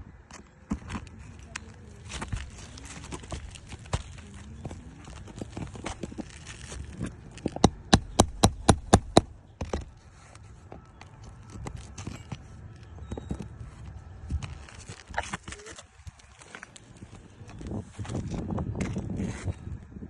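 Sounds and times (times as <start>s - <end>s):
sharp hammer strikes: 7.6s - 9.3s.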